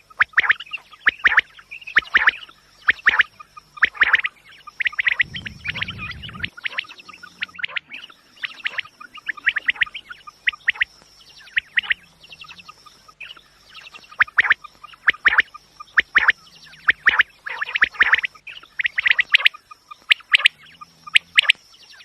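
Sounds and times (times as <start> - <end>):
quail chirping: 0.2 - 22.0
low rumble: 5.1 - 7.6.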